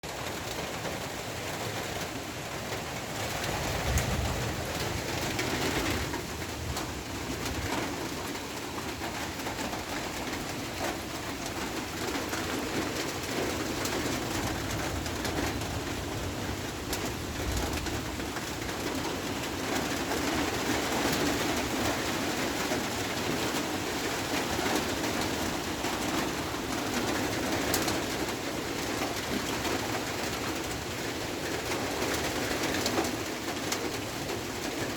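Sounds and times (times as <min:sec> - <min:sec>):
rain falling: 0:00.0 - 0:34.9.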